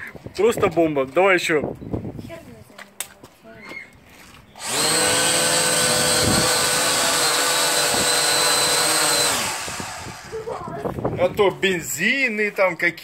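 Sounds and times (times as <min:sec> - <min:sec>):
quadcopter motors whining: 0:04.6 - 0:10.8.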